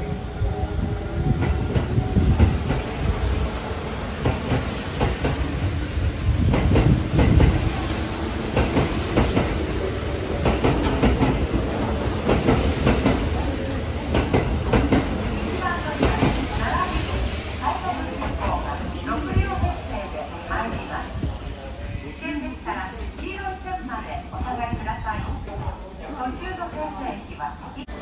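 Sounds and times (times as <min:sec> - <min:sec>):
train rumble: 0:00.0 - 0:28.0
train wheels clacking: 0:04.2 - 0:05.7, 0:06.4 - 0:16.7.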